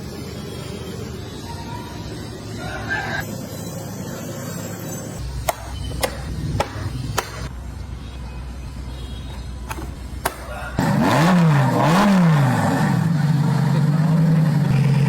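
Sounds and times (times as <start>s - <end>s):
engine revving loudly: 10.8s - 15.0s.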